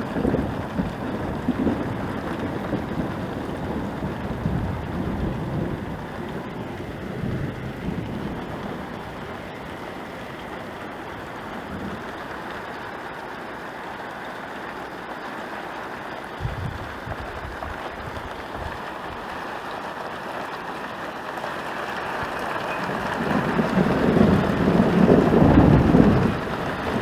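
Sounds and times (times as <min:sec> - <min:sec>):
low rumble of thunder: 0:00.0 - 0:12.8, 0:16.4 - 0:18.8, 0:22.1 - 0:27.0
heavy rain: 0:00.0 - 0:27.0.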